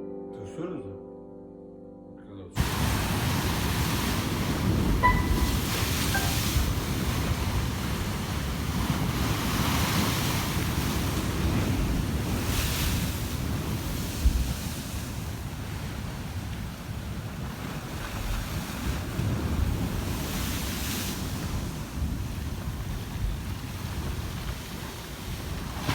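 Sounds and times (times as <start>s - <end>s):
rushing surf-like noise: 2.6s - 25.9s
wind buffeting microphone: 2.6s - 25.9s.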